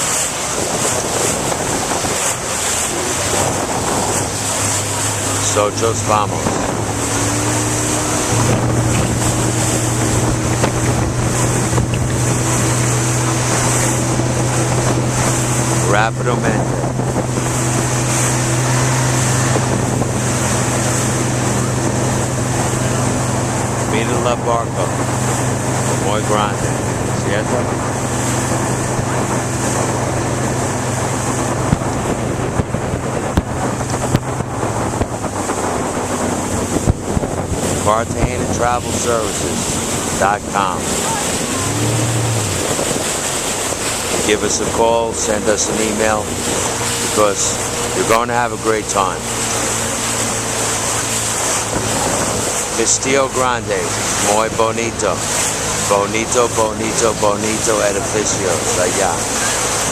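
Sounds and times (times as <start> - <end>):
motorboat engine running: 0.0 - 59.9
rushing water: 0.0 - 59.9
wind buffeting microphone: 0.0 - 59.9
sharp thumps: 6.2 - 15.8.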